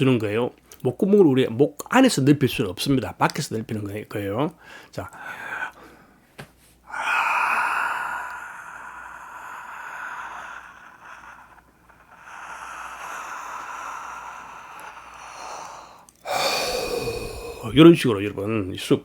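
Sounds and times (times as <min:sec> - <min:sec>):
man yawning: 0:06.9 - 0:17.8.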